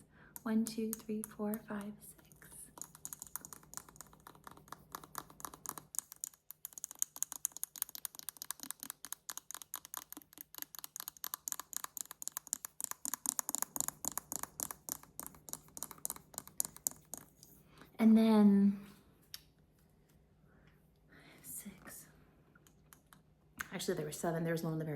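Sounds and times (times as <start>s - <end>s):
fingernails tapping on a hairbrush: 0.3s - 17.4s.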